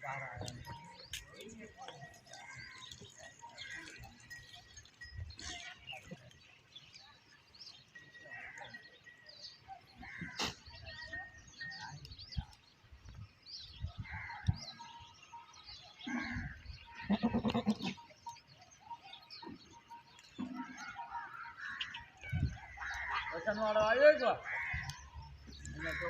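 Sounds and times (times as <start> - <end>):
small birds chirping: 0.0 - 26.0
goat bleating: 17.0 - 18.1.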